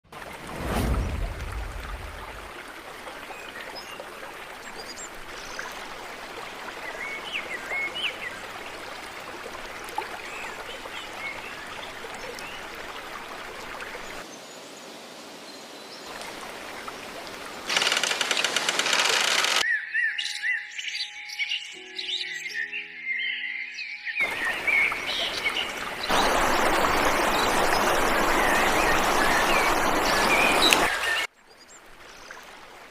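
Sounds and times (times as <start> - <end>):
river water flowing: 0.1 - 19.7, 23.8 - 32.9
bird chirps: 19.5 - 31.7
music with bird-like chirps: 19.6 - 25.7.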